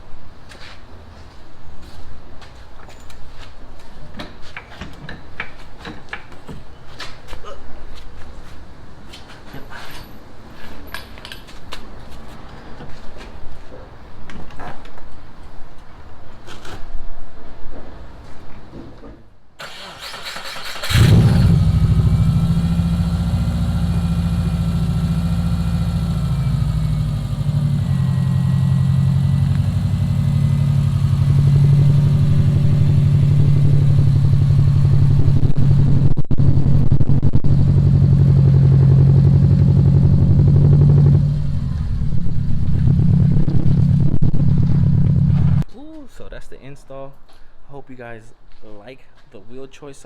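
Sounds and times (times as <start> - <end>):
starter cranking engine: 19.6 - 35.3
car engine idling: 20.9 - 45.6.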